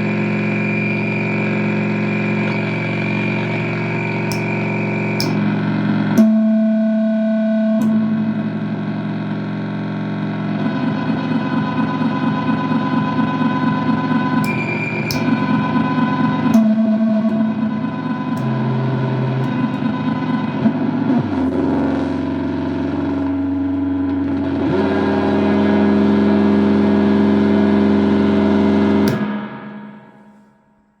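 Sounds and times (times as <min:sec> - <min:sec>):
sharp clicks: 0:05.2 - 0:05.4, 0:14.4 - 0:15.5
layered droning tones: 0:07.5 - 0:09.2, 0:14.2 - 0:22.3.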